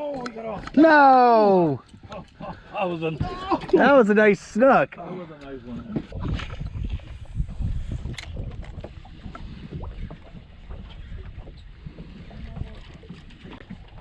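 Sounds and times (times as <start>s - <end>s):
wind rumbling on microphone: 5.5s - 14.0s.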